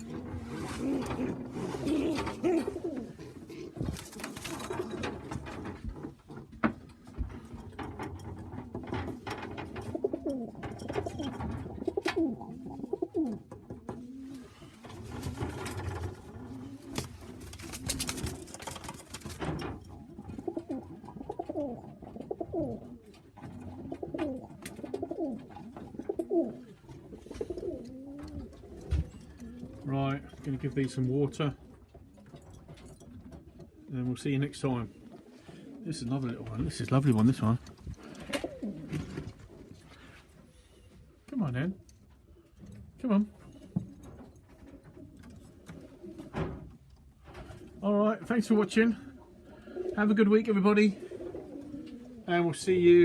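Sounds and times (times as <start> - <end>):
pigeons cooing: 0.0 - 5.5, 9.6 - 18.6, 19.9 - 29.9, 34.8 - 37.1, 37.7 - 41.2, 42.2 - 47.8, 49.0 - 50.2, 50.8 - 53.0.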